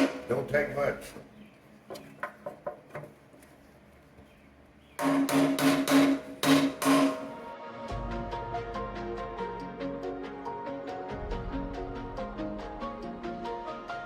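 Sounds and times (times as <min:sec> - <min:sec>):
sharp metallic taps: 0:05.0 - 0:07.3.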